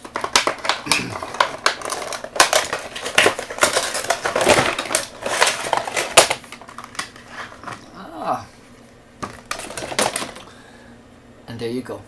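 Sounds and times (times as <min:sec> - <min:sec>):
plastic and cardboard crinkling: 0:00.0 - 0:08.0, 0:09.2 - 0:10.5.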